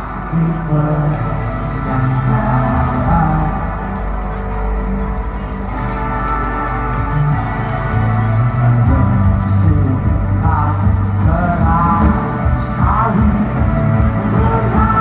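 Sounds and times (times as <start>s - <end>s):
live band music: 0.0s - 15.0s
person singing: 0.0s - 15.0s
bass and drum pulse: 7.0s - 15.0s.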